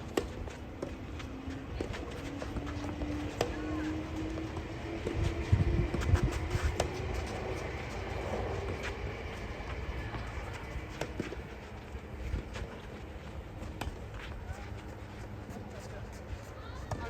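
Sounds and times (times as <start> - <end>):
wind buffeting microphone: 3.9 - 11.0.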